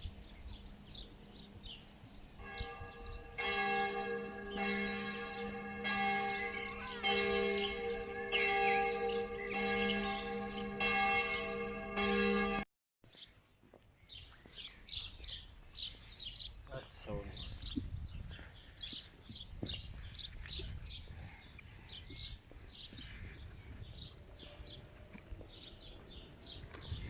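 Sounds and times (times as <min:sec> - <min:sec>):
birds chirping: 0:00.0 - 0:13.4, 0:14.0 - 0:27.0
church bell tolling: 0:02.4 - 0:12.7.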